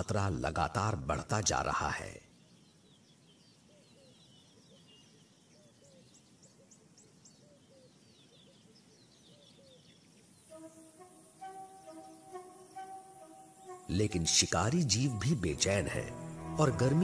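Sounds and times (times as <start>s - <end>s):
faint bird chirps: 2.2s - 16.6s
music: 10.5s - 17.0s.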